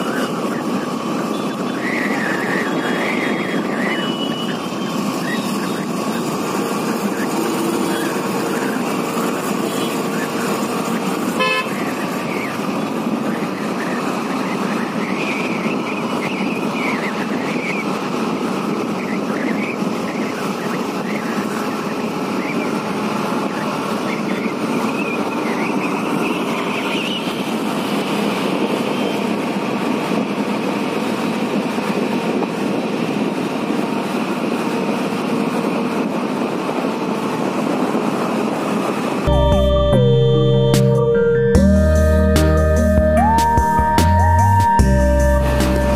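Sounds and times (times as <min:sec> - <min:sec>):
traffic engines and road noise: 0:00.0 - 0:45.9
vehicle horns: 0:09.4 - 0:10.3, 0:11.2 - 0:12.1.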